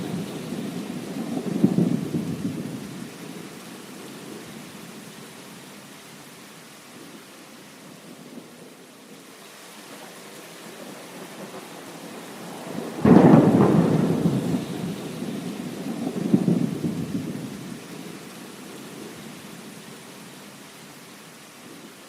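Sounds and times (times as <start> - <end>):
thunderclap rolling rumble: 0.0 - 3.4, 10.9 - 18.0
steady rain hiss: 0.0 - 22.0.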